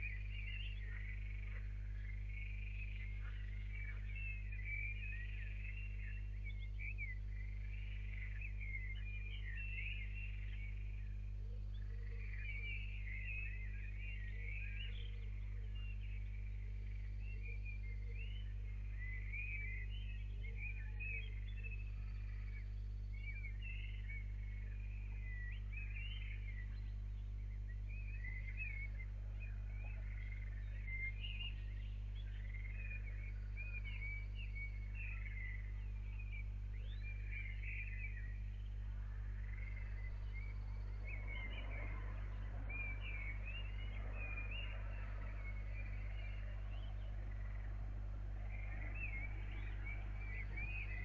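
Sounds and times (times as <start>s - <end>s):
low electrical hum: 0.0s - 51.0s
small birds singing: 0.0s - 51.0s.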